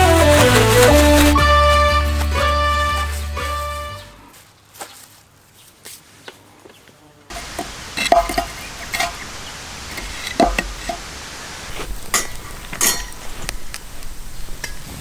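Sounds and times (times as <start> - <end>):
utensil scraping a pan: 7.3 - 13.5.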